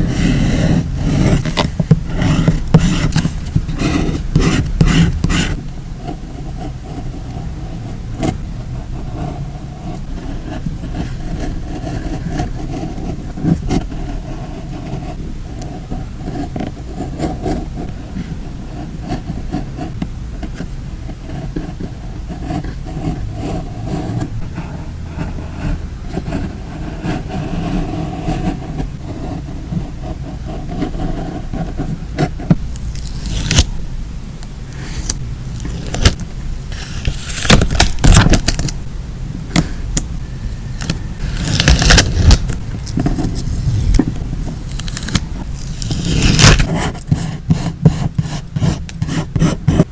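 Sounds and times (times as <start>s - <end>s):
paper rubbing scrape: 0.0s - 6.2s, 22.0s - 38.9s, 39.5s - 49.9s
paper crackling and tapping: 1.0s - 5.6s, 32.5s - 33.8s, 34.4s - 38.8s, 40.8s - 49.9s.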